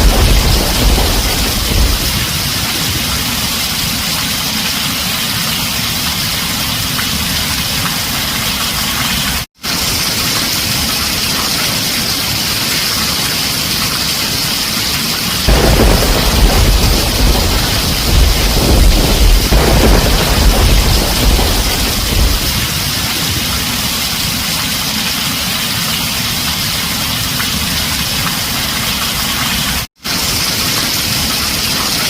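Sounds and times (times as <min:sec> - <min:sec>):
thunder rumble: 0:00.0 - 0:04.4, 0:15.4 - 0:24.6
heavy rain on a tin roof: 0:00.0 - 0:32.0.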